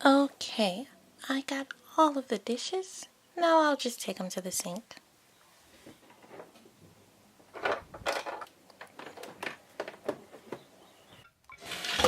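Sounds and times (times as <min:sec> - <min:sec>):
miniature dishes clattering: 0:07.6 - 0:10.2.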